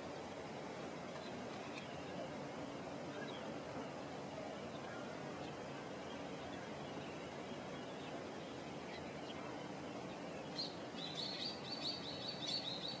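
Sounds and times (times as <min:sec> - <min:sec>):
outdoor background noise: 0:00.0 - 0:13.0
bird chirping: 0:10.2 - 0:13.0.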